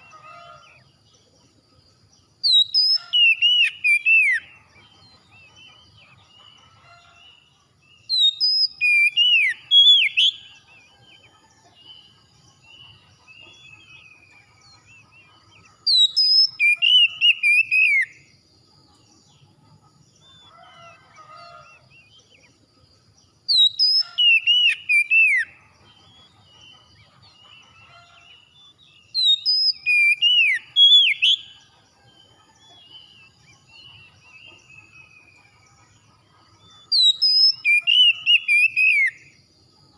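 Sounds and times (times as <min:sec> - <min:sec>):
faint bird chirps: 0:00.0 - 0:39.9
bird whistled song: 0:02.4 - 0:06.9, 0:08.0 - 0:11.2, 0:12.0 - 0:18.3, 0:23.4 - 0:31.6, 0:36.6 - 0:39.4.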